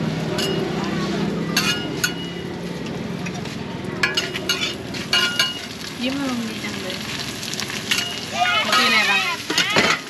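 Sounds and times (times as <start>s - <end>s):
metal spatulas clinking and scraping: 0.3s - 0.7s, 1.5s - 2.4s, 4.0s - 5.7s, 7.9s - 10.0s
pastry sizzling on a griddle: 4.2s - 10.0s.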